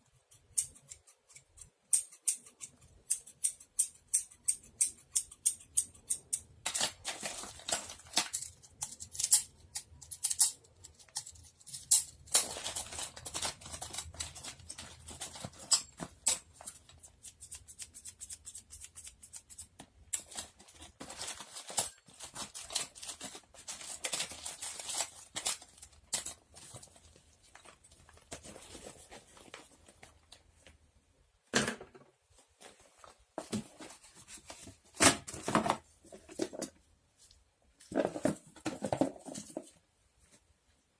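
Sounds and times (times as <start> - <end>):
small objects clicking and rustling: 0.6 - 18.0.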